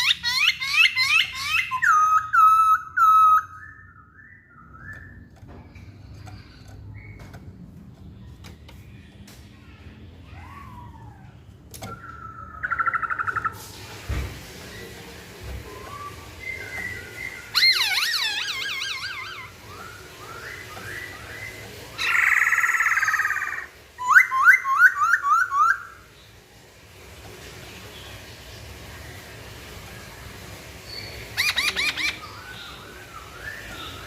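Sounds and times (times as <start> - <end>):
bird singing varied song: 0.0 - 13.6, 15.6 - 26.1, 30.8 - 34.0.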